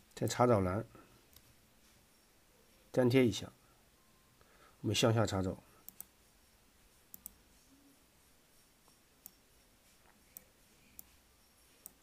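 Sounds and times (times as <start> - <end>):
computer mouse clicks: 5.8 - 6.2, 7.1 - 7.4, 8.9 - 9.4, 10.0 - 11.2, 11.8 - 12.0.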